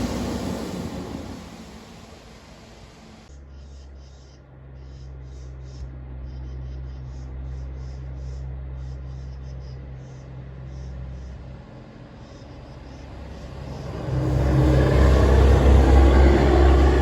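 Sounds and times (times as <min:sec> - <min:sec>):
truck engine droning: 0:00.0 - 0:03.3, 0:09.8 - 0:17.0.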